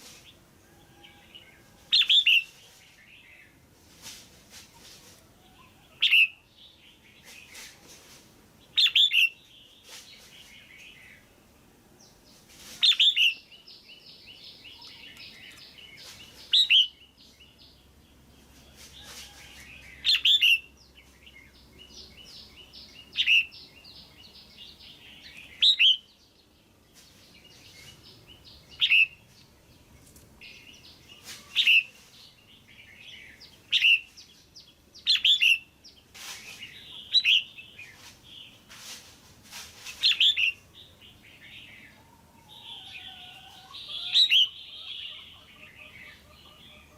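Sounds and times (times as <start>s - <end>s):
bulbul calling: 42.6s - 46.9s.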